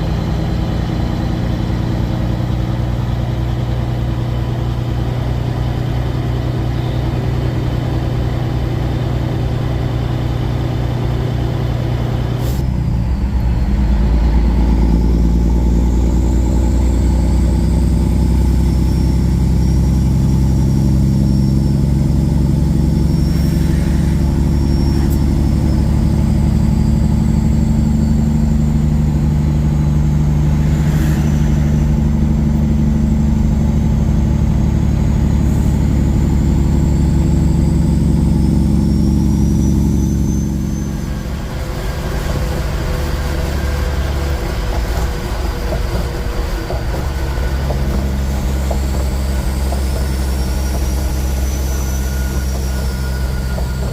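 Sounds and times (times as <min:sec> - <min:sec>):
diesel truck engine running: 0:00.0 - 0:53.9
faint high whistle: 0:18.2 - 0:53.9.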